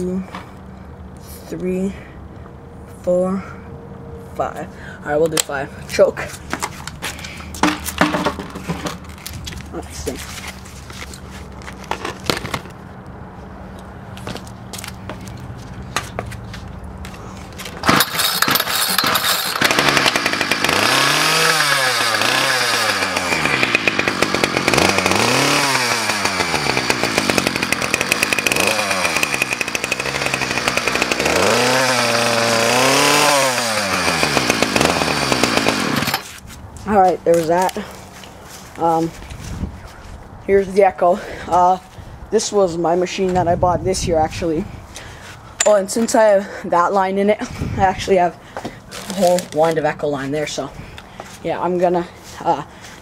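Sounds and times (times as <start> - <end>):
small engine revving: 17.6 - 36.3
small engine pull-starting: 17.6 - 36.4.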